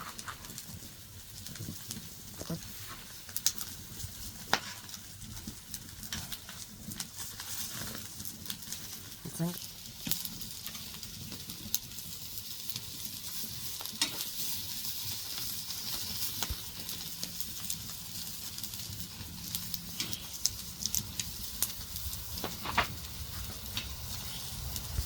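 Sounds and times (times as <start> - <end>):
sharp frying pops: 0.0 - 25.0
food sizzling in a pan: 9.2 - 18.8.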